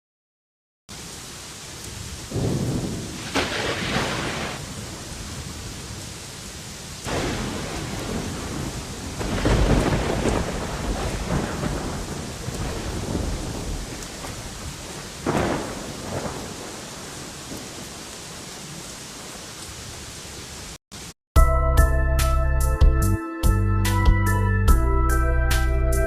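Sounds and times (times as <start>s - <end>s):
rain hissing: 0.9s - 21.2s
low thunder rumbles: 1.9s - 6.2s, 7.0s - 19.4s.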